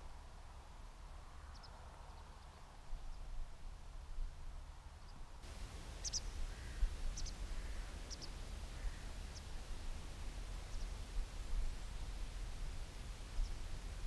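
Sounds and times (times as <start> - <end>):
wind rumble on microphone: 0.0 - 14.0
small bird chirping: 5.9 - 9.6.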